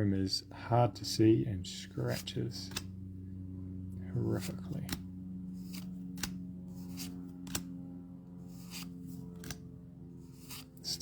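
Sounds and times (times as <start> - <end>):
low electrical hum: 0.0 - 11.0
trading cards flipped: 2.1 - 2.9, 4.4 - 7.8, 8.5 - 9.6, 10.3 - 10.8.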